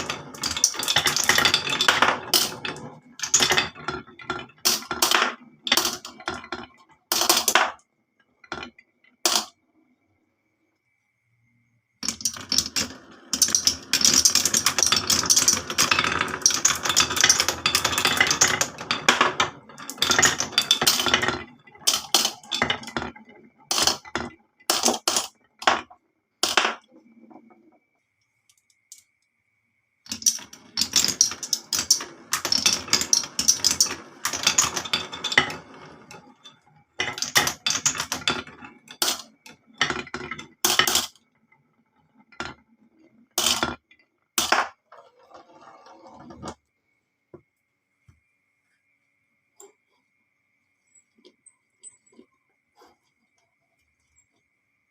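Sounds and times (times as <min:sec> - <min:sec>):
marbles rattling down tracks: 0:00.0 - 0:09.6, 0:12.0 - 0:28.0, 0:30.0 - 0:46.6.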